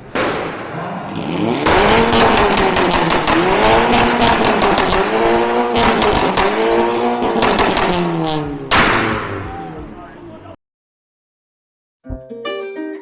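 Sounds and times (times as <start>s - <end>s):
exhaust pops and bangs: 0.0s - 9.7s
car engines revving: 0.0s - 10.6s.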